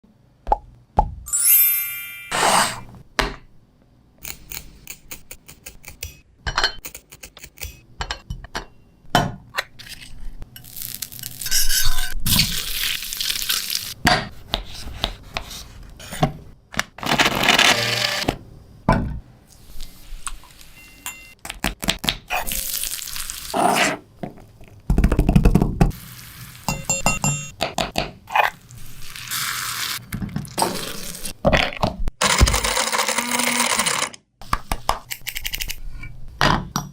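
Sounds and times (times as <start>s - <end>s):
utensils and dishes clinking: 5.8s - 8.8s, 20.8s - 21.4s.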